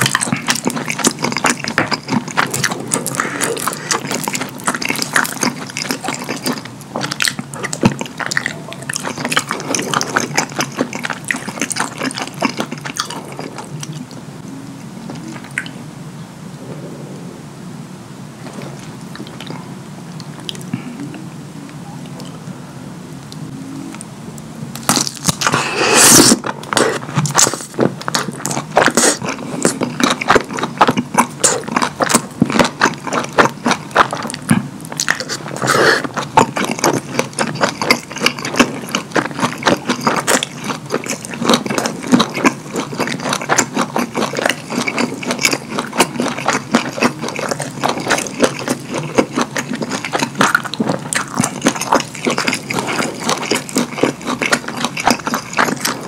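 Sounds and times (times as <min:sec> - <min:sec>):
chewing with mouth clicks: 0:00.0 - 0:14.2, 0:14.8 - 0:15.8, 0:18.4 - 0:21.0, 0:24.8 - 0:56.0
sharp biting sound: 0:24.8 - 0:27.7.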